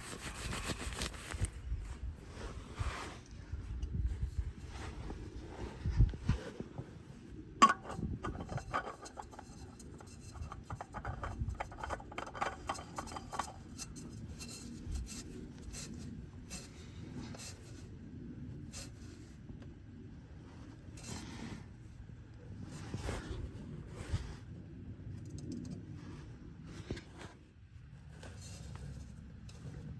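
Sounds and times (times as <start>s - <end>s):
small clicks taps and rubbing: 7.6s - 16.0s, 25.2s - 25.8s.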